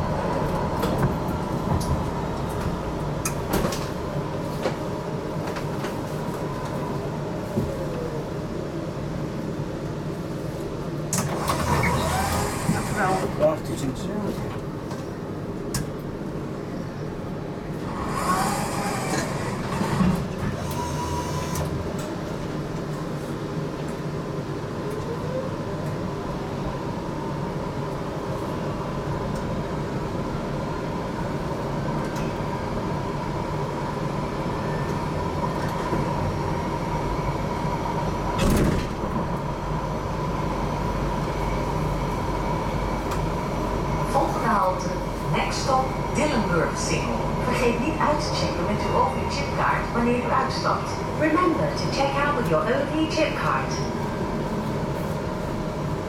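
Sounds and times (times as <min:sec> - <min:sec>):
tram motor whine: 0:00.0 - 0:13.8, 0:14.5 - 0:56.0
tram wheels rumbling: 0:00.0 - 0:56.0
tram door hiss and thump: 0:11.1 - 0:13.4, 0:38.2 - 0:39.4.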